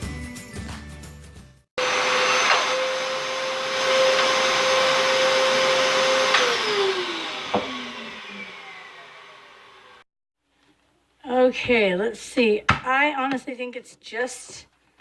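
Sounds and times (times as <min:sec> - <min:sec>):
carpet washer motor whining: 0:01.8 - 0:10.0.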